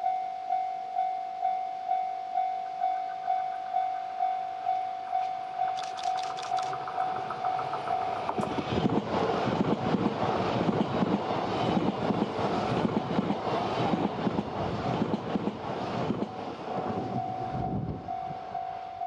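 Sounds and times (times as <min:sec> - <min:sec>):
beeping tone: 0:00.0 - 0:08.4
train passing with wheel clatter: 0:01.4 - 0:19.0.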